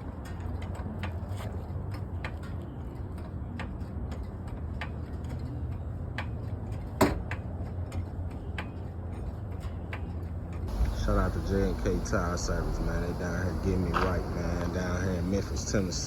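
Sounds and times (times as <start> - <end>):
clicks and knocks on wheel: 0.0 - 16.0
steady low hum: 9.1 - 16.0.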